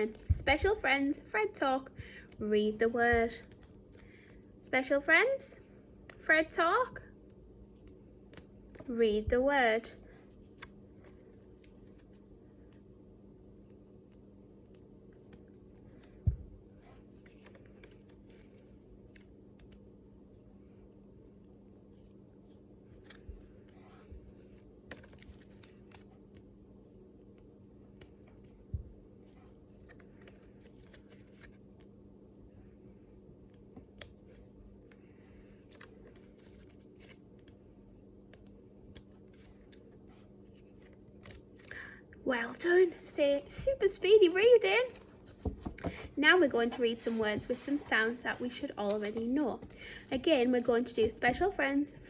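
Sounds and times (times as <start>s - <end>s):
low electrical hum: 0.0s - 52.0s
rustling and clicking handling noises: 27.9s - 31.9s, 33.5s - 37.6s, 43.0s - 51.6s.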